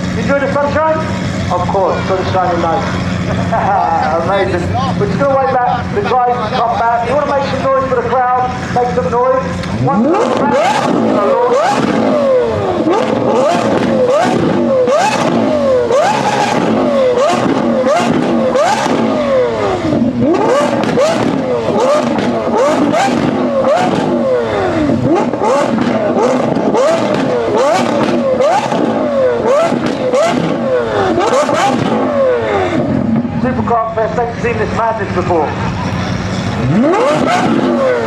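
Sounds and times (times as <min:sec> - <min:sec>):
car engine revving: 0:00.0 - 0:38.0
exhaust cracks: 0:00.0 - 0:38.0.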